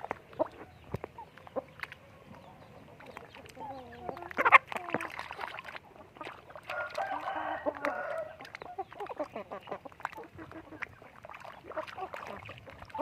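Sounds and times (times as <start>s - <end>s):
chickens clucking rapidly: 0.0s - 13.0s
chicken drawn-out call: 6.7s - 9.3s.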